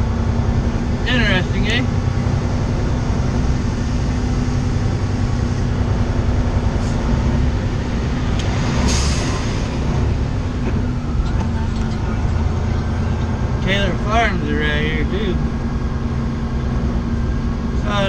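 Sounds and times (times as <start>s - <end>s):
diesel truck engine running: 0.0s - 18.0s.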